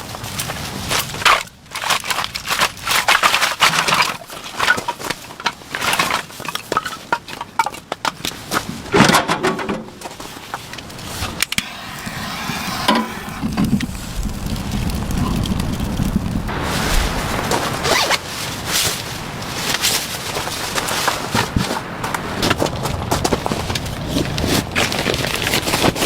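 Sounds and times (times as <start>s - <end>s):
crinkling and rustling: 16.1s - 26.0s.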